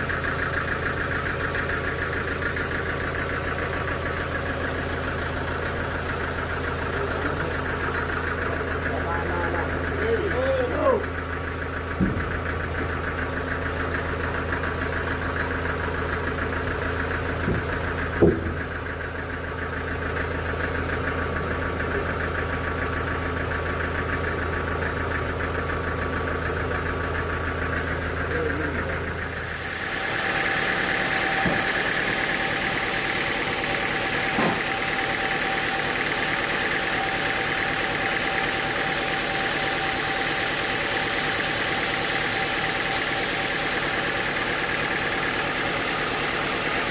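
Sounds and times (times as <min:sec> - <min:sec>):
sawmill machinery humming: 0:00.0 - 0:46.9
high machine whine: 0:28.3 - 0:46.9.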